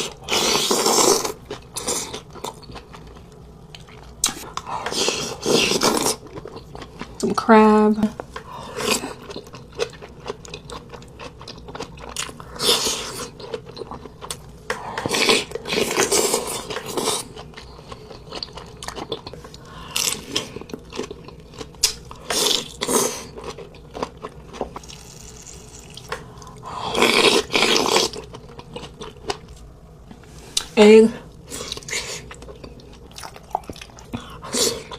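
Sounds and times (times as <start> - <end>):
chewing and crunching crab: 0.0 - 7.4, 8.2 - 29.7, 31.4 - 34.9.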